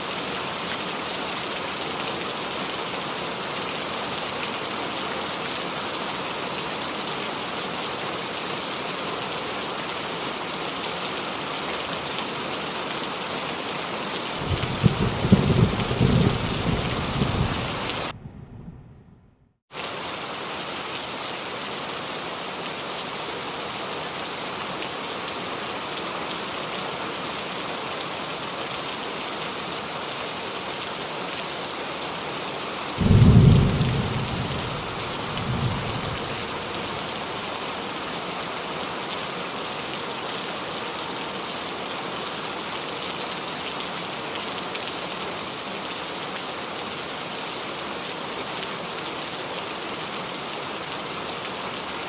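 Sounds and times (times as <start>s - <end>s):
rain falling on a roof: 0.0s - 18.2s, 19.7s - 52.0s
thunder rumbling: 14.4s - 19.5s, 33.0s - 36.8s.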